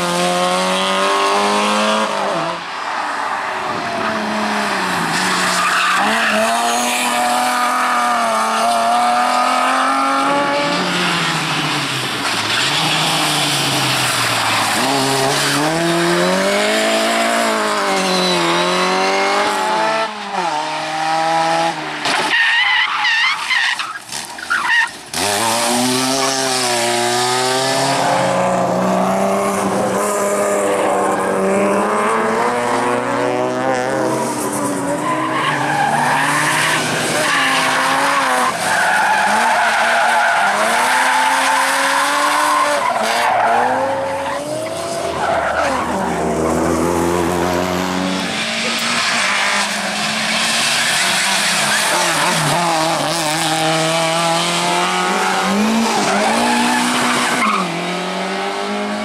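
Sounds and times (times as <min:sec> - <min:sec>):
rally car engine revving hard: 0:00.0 - 0:02.6, 0:12.6 - 0:21.8, 0:25.1 - 0:59.0
tyres squealing and skidding: 0:02.6 - 0:20.5, 0:21.9 - 0:27.4, 0:34.0 - 0:46.8, 0:48.0 - 0:53.8, 0:54.7 - 0:58.0.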